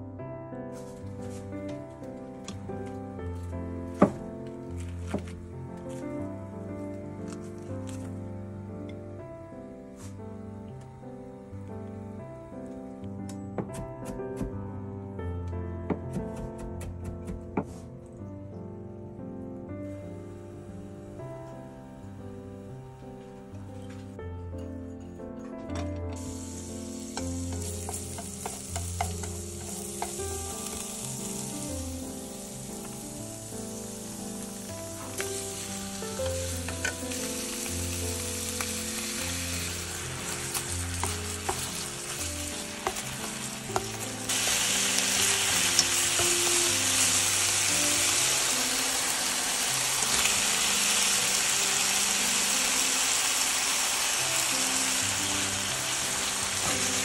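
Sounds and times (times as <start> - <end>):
food sizzling in a pan: 26.2 - 57.0
cooking utensil tapping and scraping: 27.2 - 30.8.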